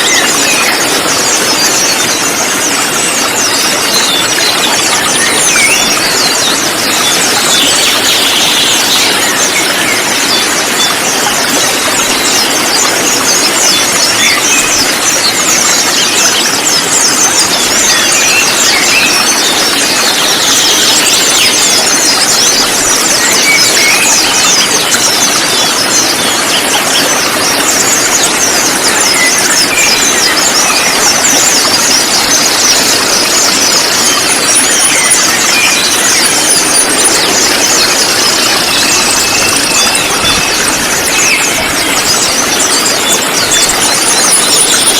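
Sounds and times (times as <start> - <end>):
birds chirping and twittering: 0.0 - 44.9.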